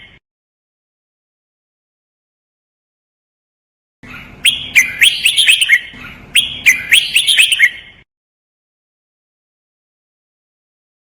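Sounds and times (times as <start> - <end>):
bird singing whistled notes: 4.1 - 8.0.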